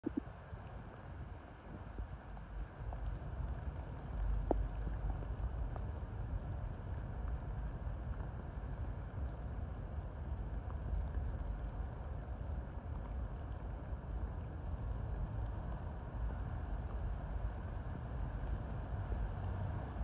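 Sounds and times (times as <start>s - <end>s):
low steady rumble: 0.0s - 20.0s
rain on tree leaves: 0.1s - 20.0s.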